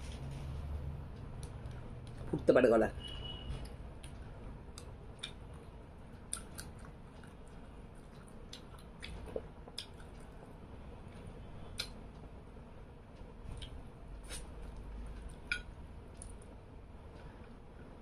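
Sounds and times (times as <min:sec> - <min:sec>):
person chewing food: 0:03.6 - 0:10.4, 0:11.1 - 0:12.0, 0:13.5 - 0:16.4.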